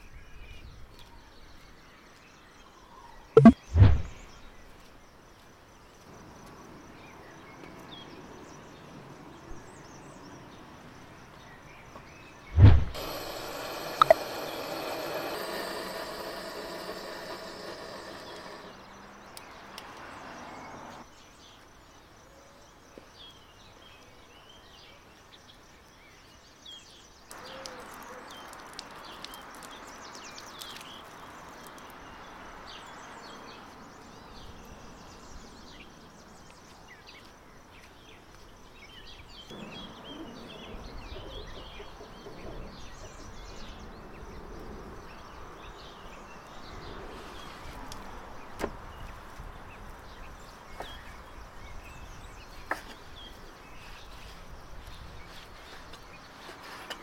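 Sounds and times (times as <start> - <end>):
outdoor background noise: 0.0 - 57.0
small birds chirping: 0.0 - 57.0
gas torch hissing: 12.6 - 18.8.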